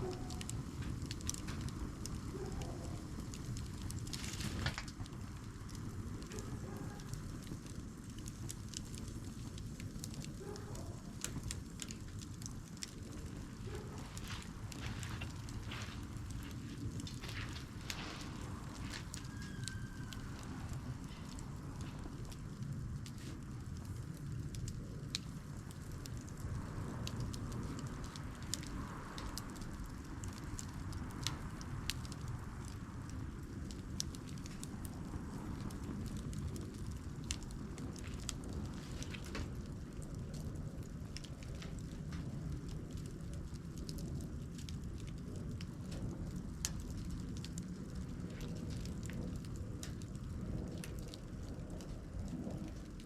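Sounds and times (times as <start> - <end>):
campfire crackling and popping: 0.0 - 53.0
low steady fire rumble: 0.0 - 53.0.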